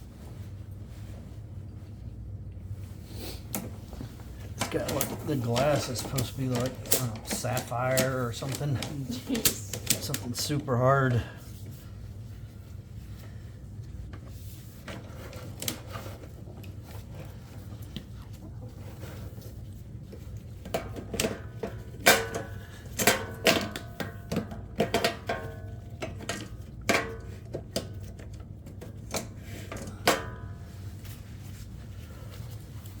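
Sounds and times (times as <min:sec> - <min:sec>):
steady low hum: 0:00.0 - 0:33.0
hard objects clicking and clattering: 0:04.6 - 0:10.4.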